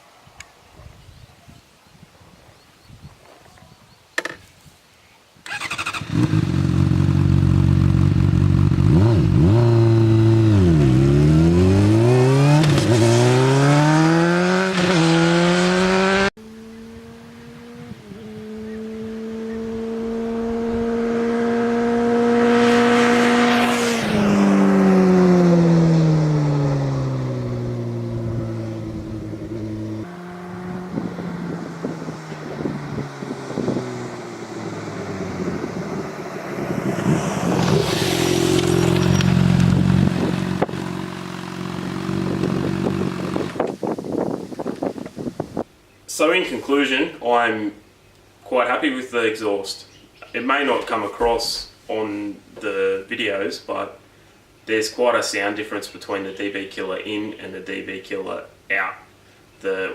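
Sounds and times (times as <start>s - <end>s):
motorcycle passing by: 5.5s - 43.7s
motorcycle engine revving: 5.5s - 44.4s.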